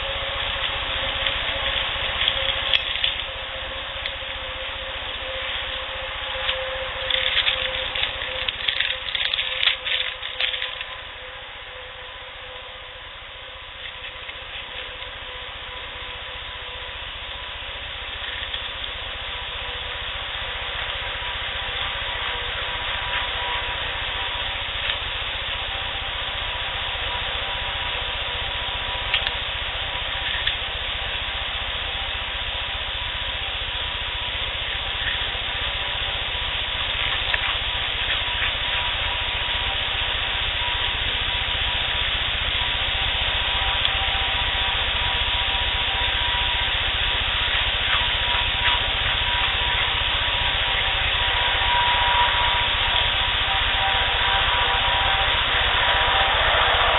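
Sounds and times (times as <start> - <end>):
faint steady tone: 0.0 - 56.9
steady hiss: 0.0 - 56.9
faint clicks: 0.4 - 4.4, 6.4 - 11.0, 18.1 - 19.0, 29.1 - 29.5.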